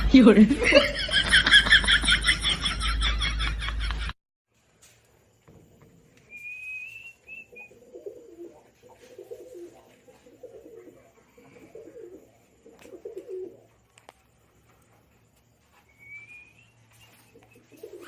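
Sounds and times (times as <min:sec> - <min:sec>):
thin whistle: 0:06.3 - 0:07.8, 0:15.8 - 0:18.0.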